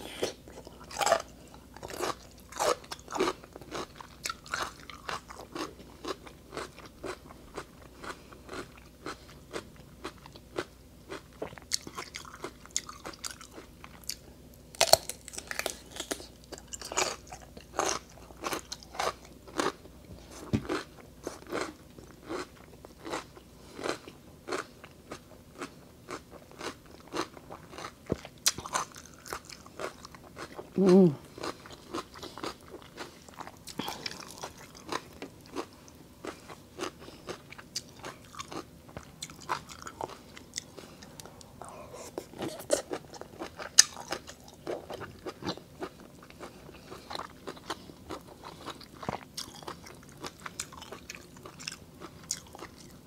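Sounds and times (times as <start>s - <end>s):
crunching raw cucumber: 14.8s - 19.8s.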